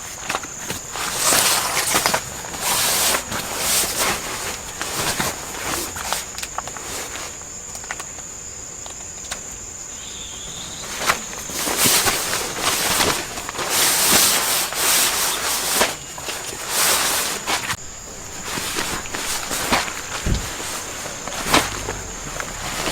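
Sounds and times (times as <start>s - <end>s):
insects trilling: 0.0s - 22.9s
rubbing scraping strokes: 16.7s - 22.9s.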